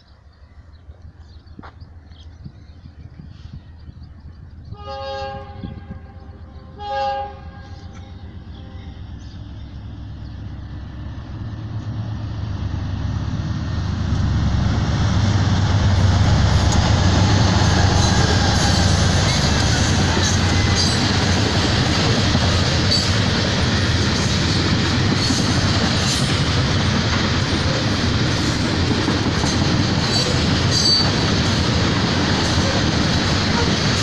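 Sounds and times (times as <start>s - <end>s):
locomotive engine and wheels rumbling: 0.0s - 34.0s
locomotive horn blasts: 4.8s - 9.0s.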